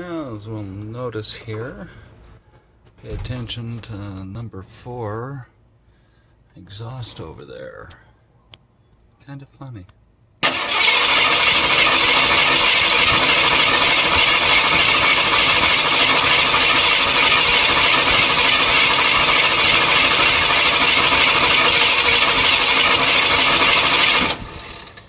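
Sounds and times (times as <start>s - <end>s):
engine rough idle: 10.4s - 25.0s
valvetrain clatter: 10.5s - 25.0s.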